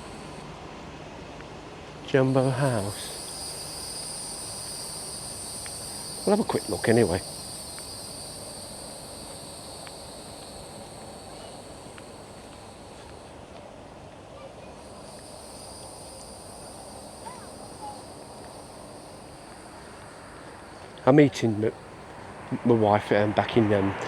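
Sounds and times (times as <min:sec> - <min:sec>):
insects chirring: 0:00.0 - 0:00.5, 0:02.1 - 0:23.9
low background hum: 0:00.0 - 0:24.0.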